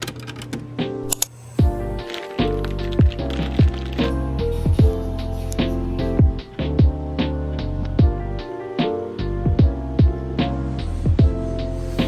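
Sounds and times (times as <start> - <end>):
clicky percussion: 0.0 - 6.7
deep kick drum: 1.6 - 2.0, 3.0 - 3.9, 4.6 - 5.2, 6.1 - 7.2, 8.0 - 8.4, 9.4 - 11.6.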